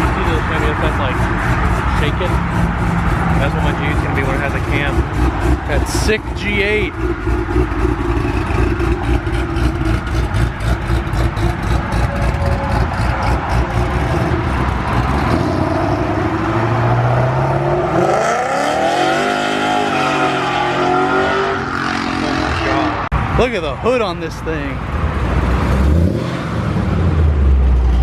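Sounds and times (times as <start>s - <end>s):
car engine idling lopey: 0.0s - 15.3s
car engine revving: 0.0s - 23.3s, 24.9s - 28.0s.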